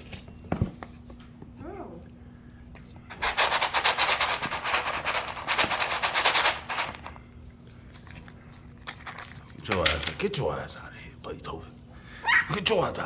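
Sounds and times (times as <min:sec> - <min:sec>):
puppy claws scrabbling at box: 0:03.2 - 0:07.0.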